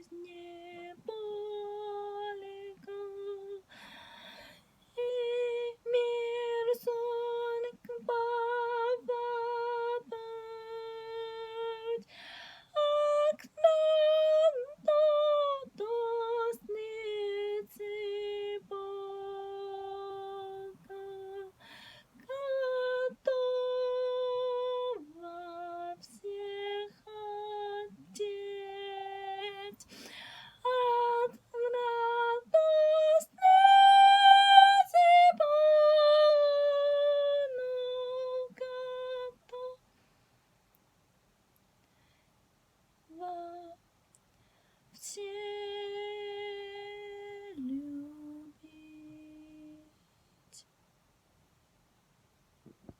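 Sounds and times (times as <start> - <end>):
high voice singing unaccompanied: 30.6 - 39.8.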